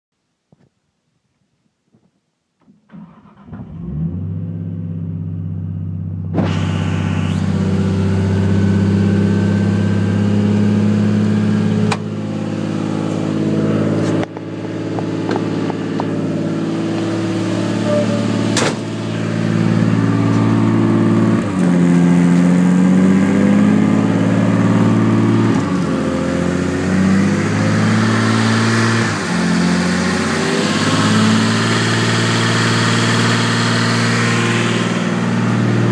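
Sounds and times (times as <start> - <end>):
car engine cranking: 2.9 - 4.3, 10.9 - 35.9
car engine idling: 2.9 - 28.1, 29.1 - 35.9.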